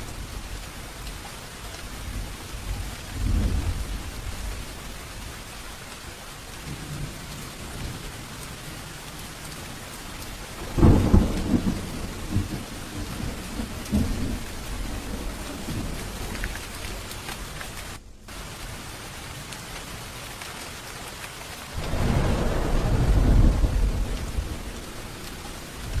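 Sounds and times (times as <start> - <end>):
steady rain falling: 0.0 - 26.0
low roll of thunder: 1.9 - 4.9, 10.6 - 16.3, 21.7 - 26.0.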